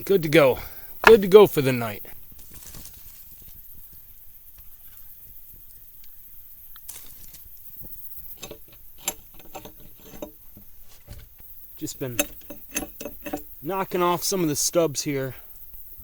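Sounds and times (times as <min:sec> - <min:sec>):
wood clicks: 0:01.0 - 0:01.7, 0:08.1 - 0:13.6
wood knocking and clattering: 0:01.0 - 0:01.7, 0:08.2 - 0:13.6.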